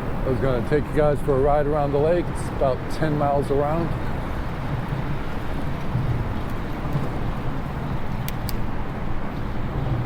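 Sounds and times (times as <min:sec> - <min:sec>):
low rumble of bike riding: 0:00.0 - 0:10.0.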